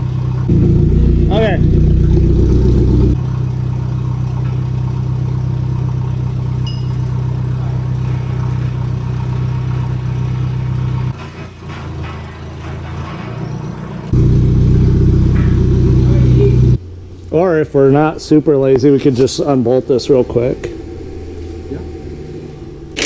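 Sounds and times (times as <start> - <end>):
forklift engine idling: 0.0 - 17.1.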